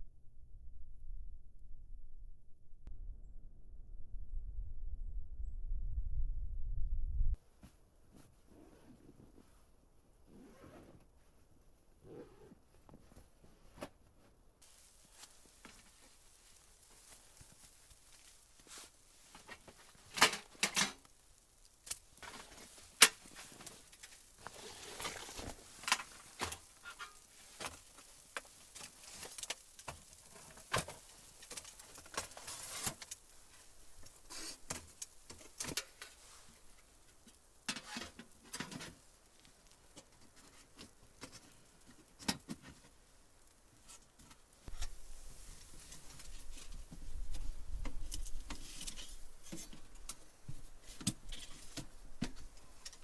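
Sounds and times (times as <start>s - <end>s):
low rumble: 0.0s - 7.4s.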